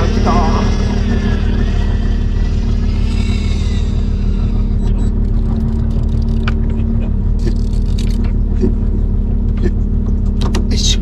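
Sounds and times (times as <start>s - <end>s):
electric fishing reel whining: 0.0s - 6.6s
boat engine droning: 0.0s - 11.0s.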